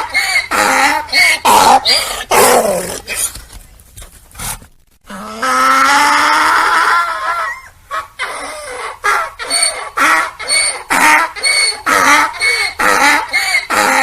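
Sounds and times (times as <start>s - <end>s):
donkey braying: 5.1s - 14.0s.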